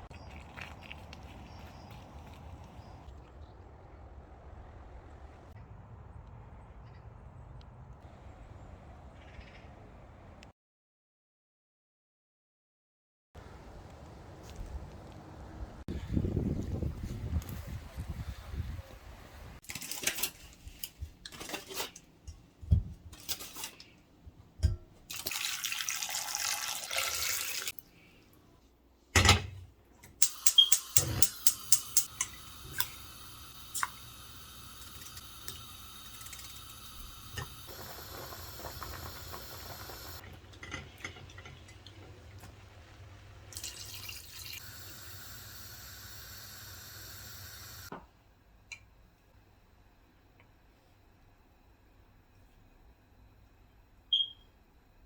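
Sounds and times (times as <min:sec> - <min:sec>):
water running: 0:00.0 - 0:03.3, 0:25.1 - 0:27.8, 0:30.2 - 0:47.9.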